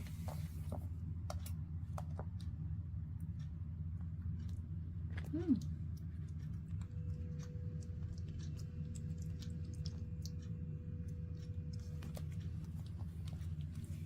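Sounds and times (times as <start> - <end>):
steady low hum: 0.0 - 14.0
monkey eating clicks and smacks: 4.2 - 14.0.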